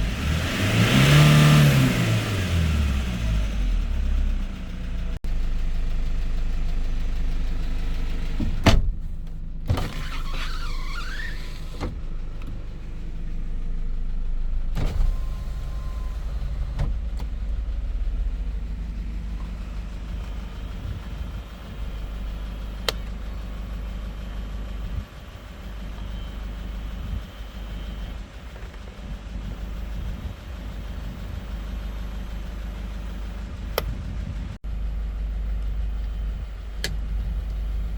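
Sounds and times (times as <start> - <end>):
diesel engine idling: 2.2 - 37.9
wavering squeak: 9.8 - 12.0.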